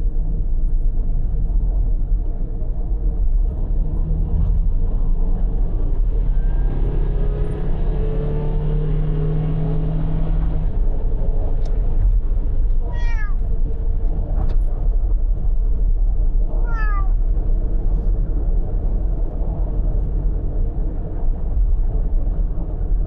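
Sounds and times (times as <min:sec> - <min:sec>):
car driving rumble: 0:00.0 - 0:23.0
cat meowing: 0:12.9 - 0:13.4, 0:16.6 - 0:17.2.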